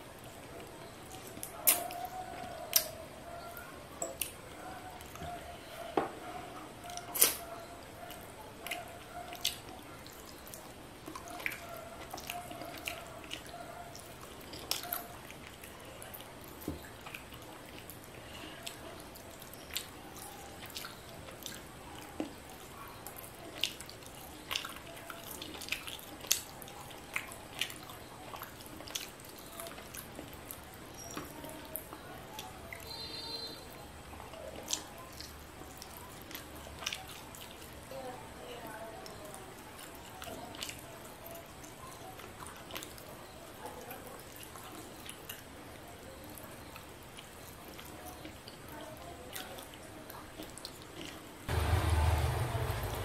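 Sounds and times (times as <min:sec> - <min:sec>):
wet chewing and mouth clicks: 0:00.2 - 0:05.5, 0:06.8 - 0:33.1, 0:34.1 - 0:37.8, 0:39.0 - 0:51.3
fingers squishing food: 0:00.6 - 0:05.5.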